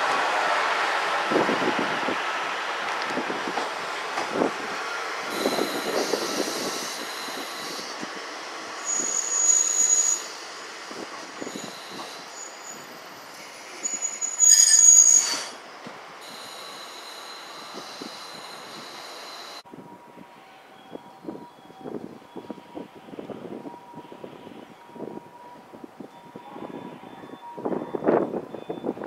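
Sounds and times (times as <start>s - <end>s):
train rumble with clanks: 0.0s - 29.0s
train brake and wheel squeals: 5.3s - 15.6s, 16.2s - 19.6s, 20.2s - 29.0s
steady high whine: 16.2s - 19.6s.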